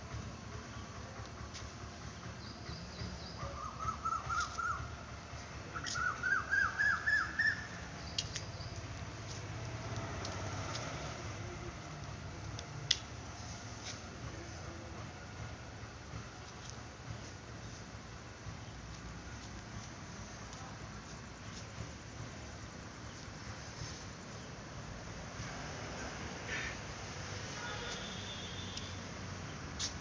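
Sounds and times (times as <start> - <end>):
bird calling rising notes: 5.7 - 7.8
sharp tick: 8.1 - 8.6, 12.0 - 13.1.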